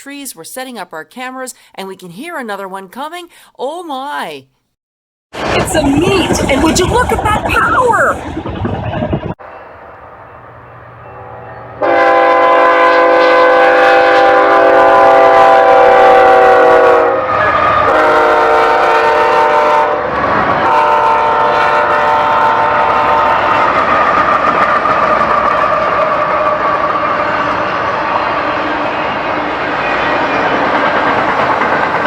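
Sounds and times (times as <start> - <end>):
train rumble and rolling: 5.4 - 32.0
locomotive air horn blasts: 11.2 - 23.8.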